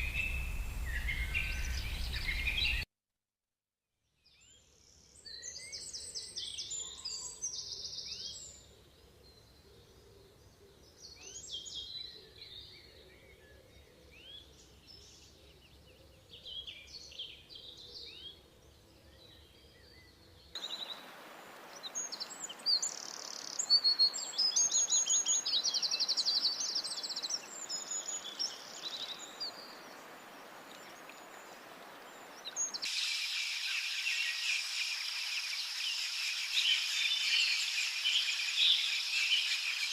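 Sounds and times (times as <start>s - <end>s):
bird song with rapid trills: 0.0s - 2.8s, 21.7s - 30.0s, 30.7s - 39.9s
steady hiss: 20.6s - 25.0s, 26.6s - 39.9s.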